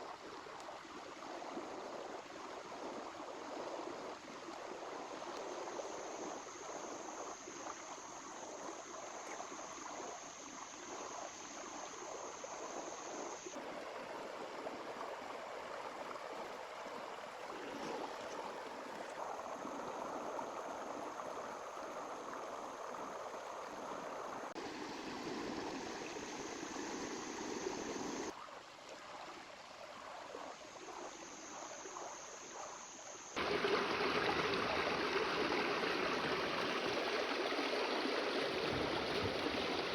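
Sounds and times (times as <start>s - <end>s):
river running over rocks: 33.4s - 39.9s.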